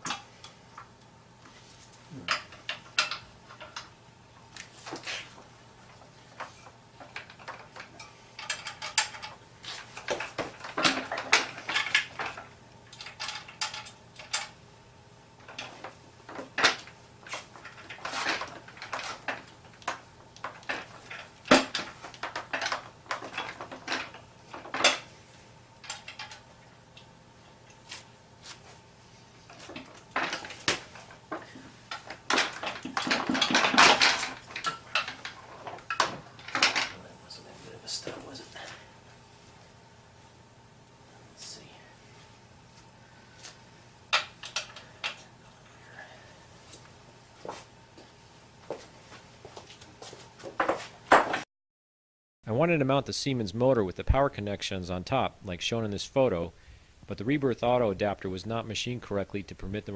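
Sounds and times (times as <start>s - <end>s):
metal parts and tools clinking: 7.0s - 9.4s, 15.5s - 25.1s, 25.8s - 26.5s, 29.5s - 37.0s.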